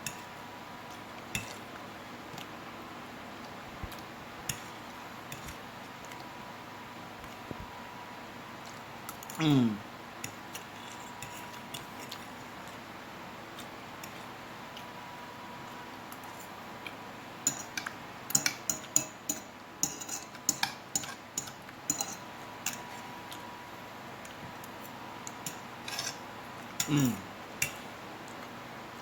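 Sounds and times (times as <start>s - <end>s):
fork scraping on plate: 25.5s - 26.2s.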